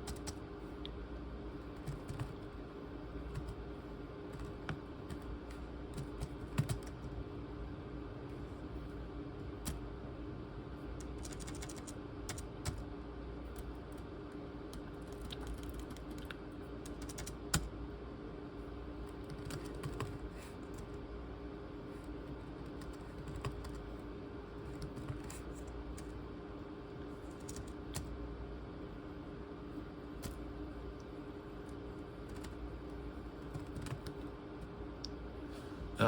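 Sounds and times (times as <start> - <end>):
laptop keyboard typing: 0.0 - 0.5, 1.6 - 2.6, 3.2 - 7.2, 9.5 - 9.8, 11.0 - 12.9, 14.7 - 17.7, 19.0 - 21.0, 22.2 - 24.0, 24.6 - 26.2, 27.1 - 28.2, 31.6 - 34.3
steady low hum: 0.0 - 36.0.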